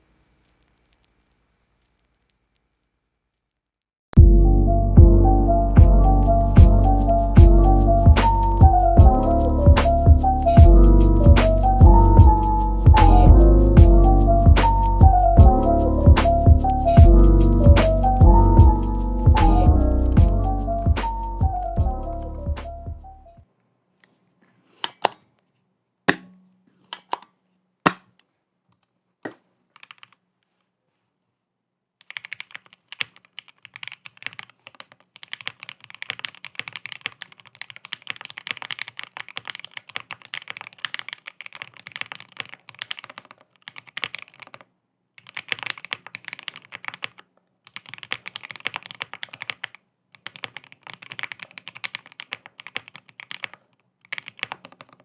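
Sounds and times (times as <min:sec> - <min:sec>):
typing on mechanical keyboard: 0:29.7 - 0:30.2, 0:32.0 - 0:55.0.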